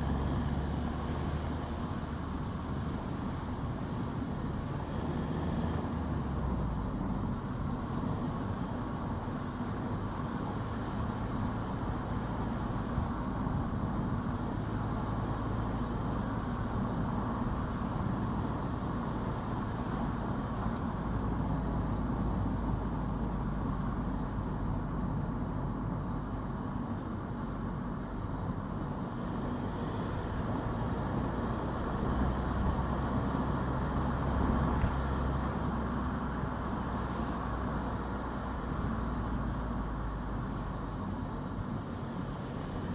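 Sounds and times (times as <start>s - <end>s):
car engine rumble: 0.0s - 42.9s
tyre noise on road: 0.0s - 42.9s.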